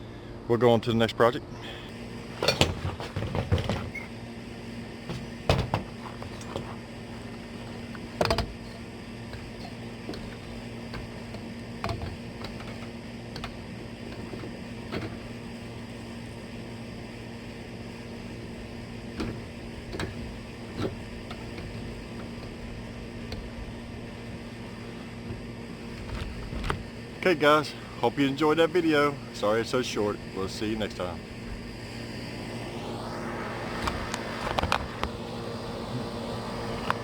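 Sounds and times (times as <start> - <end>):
low mechanical hum: 0.0 - 37.0
scattered knocks and clicks: 5.1 - 15.4.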